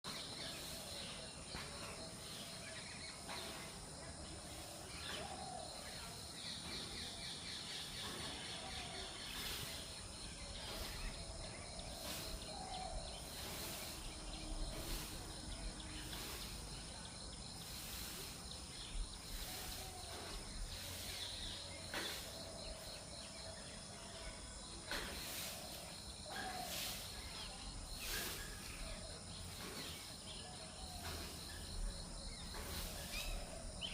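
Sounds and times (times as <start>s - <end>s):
insect drone: 9.1s - 23.8s.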